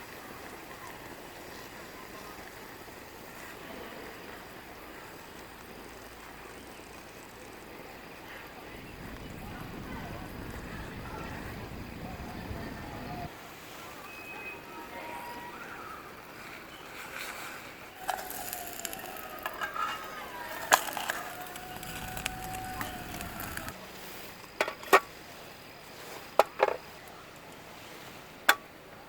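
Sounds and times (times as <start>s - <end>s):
metal cookware clicks and knocks: 18.0s - 21.1s
metal cookware scraping: 18.0s - 23.7s.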